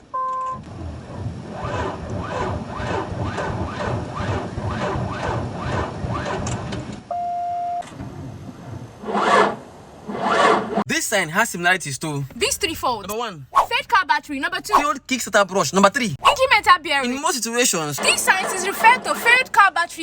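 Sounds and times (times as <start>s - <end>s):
car engine cranking: 0.4s - 7.0s, 17.9s - 20.0s
short steady beep: 7.1s - 7.8s
person talking: 10.9s - 20.0s.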